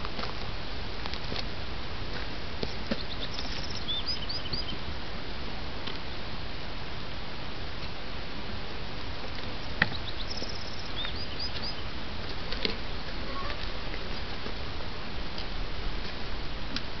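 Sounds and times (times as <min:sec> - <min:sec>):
steady outdoor hiss: 0:00.0 - 0:17.0
bird trilling and chirping: 0:02.7 - 0:04.8, 0:09.8 - 0:11.9.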